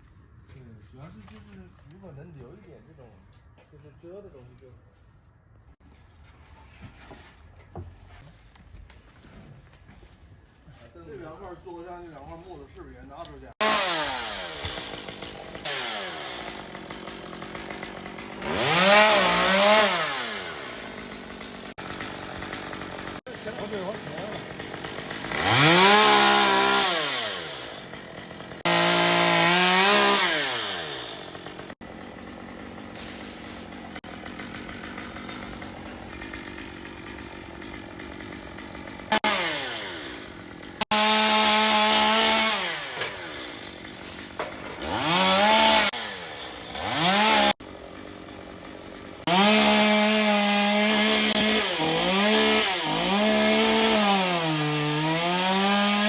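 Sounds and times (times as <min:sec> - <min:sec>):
chain cutting wood: 0:13.2 - 0:56.0
chainsaw revving: 0:13.5 - 0:56.0.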